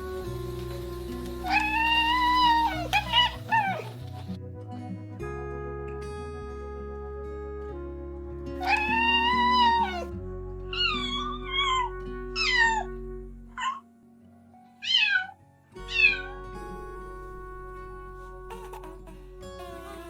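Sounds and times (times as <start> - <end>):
soft background music: 0.0 - 20.0
cat meowing: 1.4 - 4.1, 8.6 - 10.1, 10.8 - 12.9, 14.8 - 16.4.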